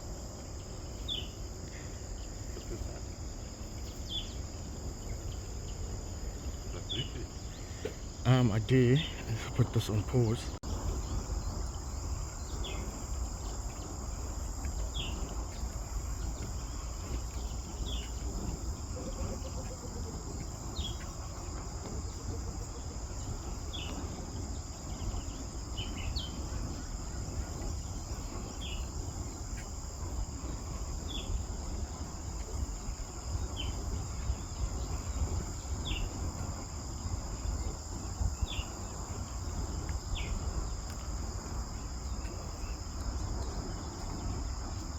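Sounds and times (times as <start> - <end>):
high-pitched insect chorus: 0.0 - 44.9
low background rumble: 0.0 - 44.9.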